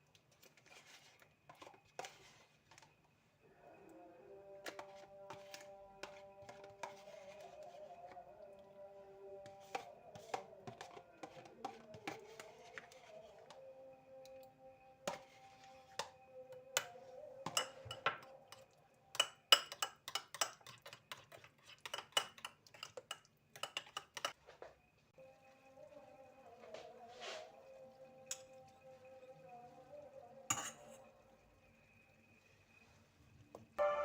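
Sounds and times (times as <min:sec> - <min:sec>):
soft background music: 0:03.4 - 0:19.8, 0:24.4 - 0:34.0
dishes and cutlery clinking: 0:16.8 - 0:24.4, 0:30.5 - 0:31.1.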